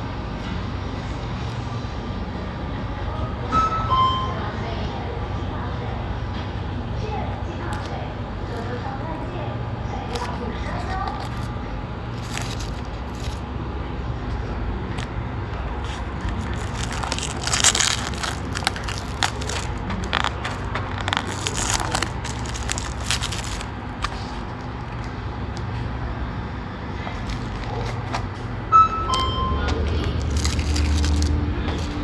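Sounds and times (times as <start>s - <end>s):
steady low hum: 0.0s - 32.0s
two short tones: 3.5s - 4.4s, 28.7s - 29.8s
packaging crinkling: 10.1s - 13.5s, 15.8s - 25.0s, 27.1s - 28.2s, 30.0s - 32.0s.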